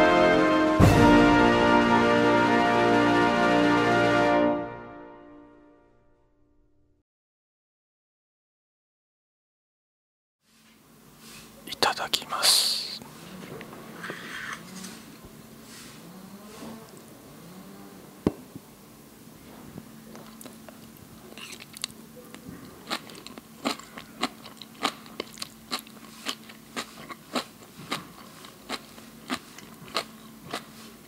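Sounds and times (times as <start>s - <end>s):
crunchy chewing: 20.0s - 31.0s.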